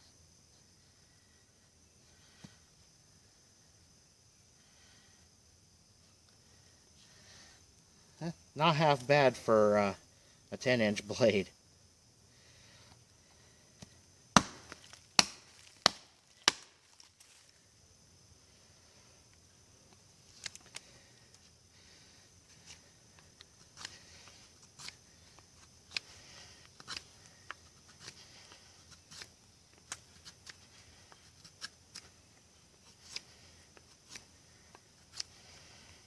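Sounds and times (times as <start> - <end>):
knife carving wood: 22.5 - 36.0.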